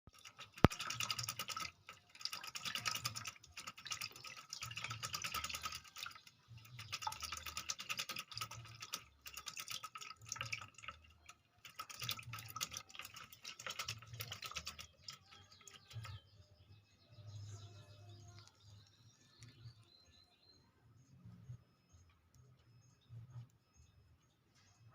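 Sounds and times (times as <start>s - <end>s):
bird rattling chatter: 0.1s - 16.2s.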